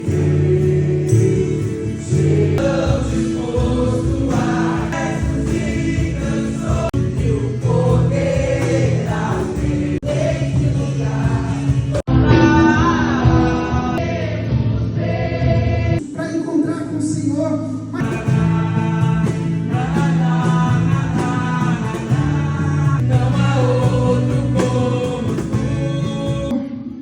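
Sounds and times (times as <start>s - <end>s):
congregation singing: 0.0s - 16.0s, 18.0s - 26.6s.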